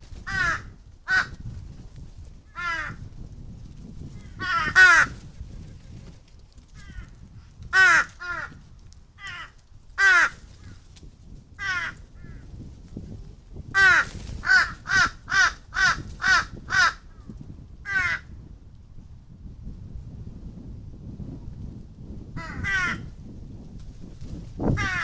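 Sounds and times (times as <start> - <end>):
crow cawing: 0.3 - 1.3, 2.6 - 3.0, 4.3 - 5.2, 6.8 - 7.1, 7.7 - 8.6, 9.2 - 10.4, 11.6 - 12.4, 13.8 - 17.1, 17.9 - 18.3, 22.4 - 23.1, 24.8 - 25.0.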